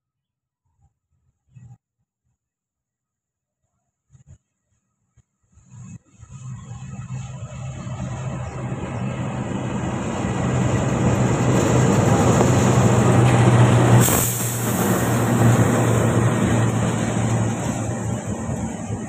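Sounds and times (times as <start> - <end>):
locomotive engine drone: 5.7 - 19.0
train coaches rolling on rails: 6.3 - 19.0
sharp burst of noise: 13.7 - 17.9.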